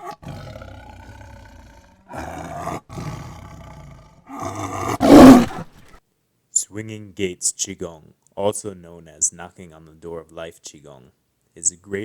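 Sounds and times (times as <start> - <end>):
big cat roaring and growling: 0.0 - 5.8.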